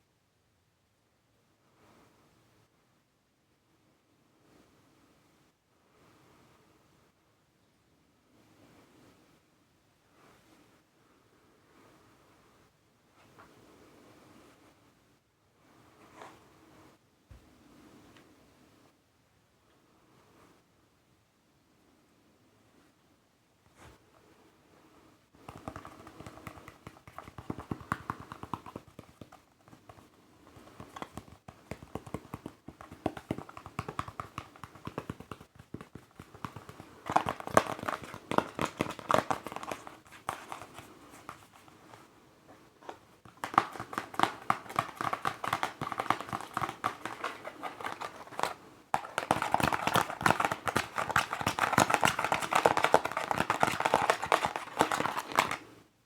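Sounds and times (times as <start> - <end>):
fingers tapping on a mask: 25.4 - 41.7, 42.8 - 55.6.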